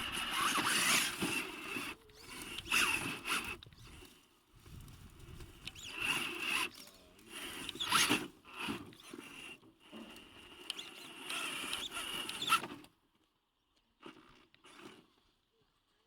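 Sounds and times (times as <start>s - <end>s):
tyres scrabbling on rough ground: 0.0s - 10.3s
electric drivetrain whining: 0.0s - 13.0s.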